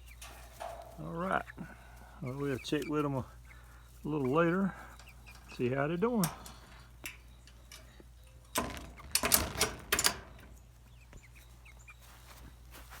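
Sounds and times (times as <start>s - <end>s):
clattering knocks and rustles: 0.0s - 1.0s, 5.0s - 10.8s
chickens chirping: 0.0s - 13.0s.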